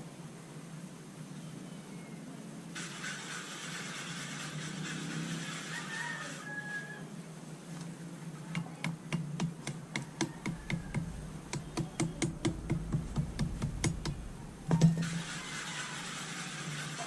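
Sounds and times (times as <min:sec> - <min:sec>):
light taps: 0:08.5 - 0:15.0
louder knock: 0:10.3 - 0:15.1.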